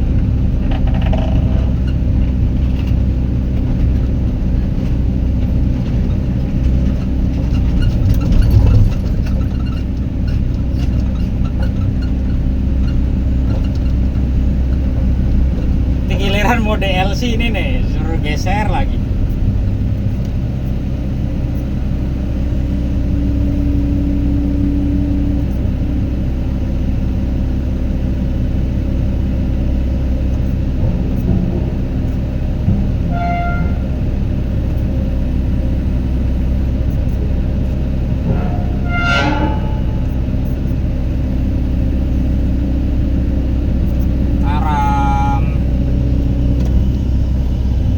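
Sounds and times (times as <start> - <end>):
diesel engine droning: 0.0 - 47.9.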